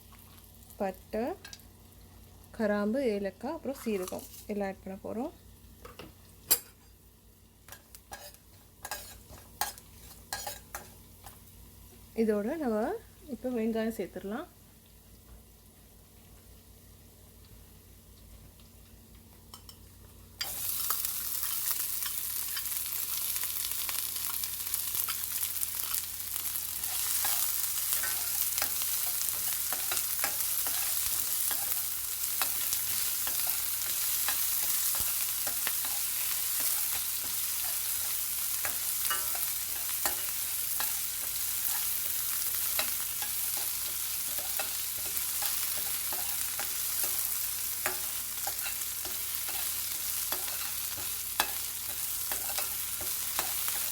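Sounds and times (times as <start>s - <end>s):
onion sizzling in hot oil: 0.0s - 53.9s
spatula scraping a pan: 7.7s - 10.9s, 24.8s - 53.9s.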